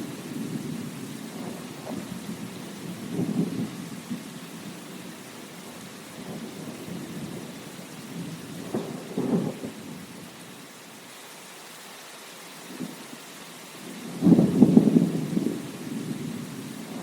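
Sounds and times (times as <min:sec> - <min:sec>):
thunder rumbling: 0:00.0 - 0:10.2, 0:13.8 - 0:17.0
steady rain: 0:00.0 - 0:17.0.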